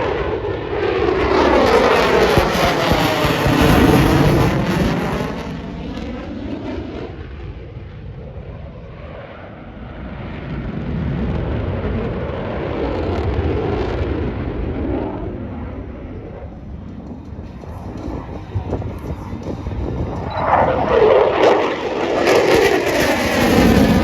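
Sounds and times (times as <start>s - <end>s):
jet engine roar: 0.0s - 24.0s.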